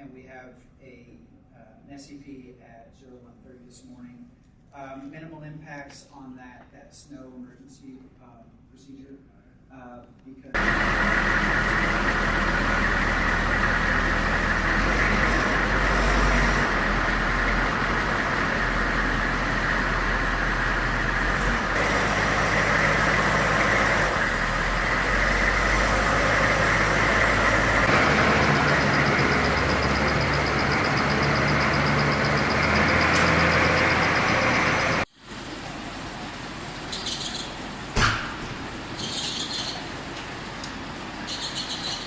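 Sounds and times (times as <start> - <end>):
car engine running: 10.6 - 35.1
rushing road noise: 10.6 - 42.0.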